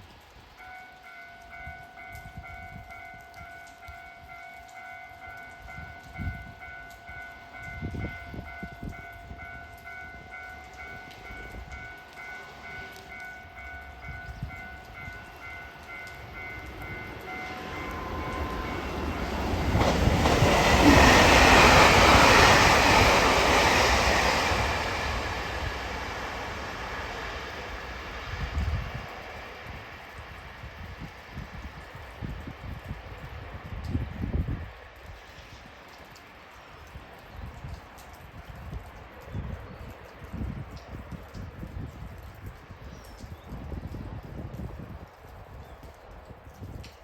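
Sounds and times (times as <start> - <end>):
electric train passing: 0.1 - 37.0.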